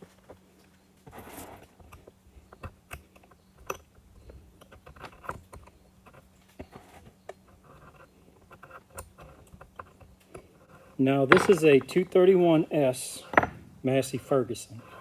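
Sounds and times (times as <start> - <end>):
metal parts and tools clicking: 11.3 - 12.1.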